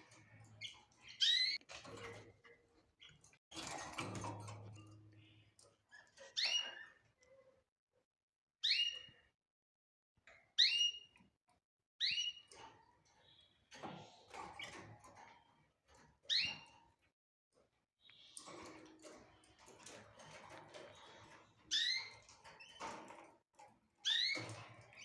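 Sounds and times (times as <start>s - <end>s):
bird chirping: 0.6s - 1.6s.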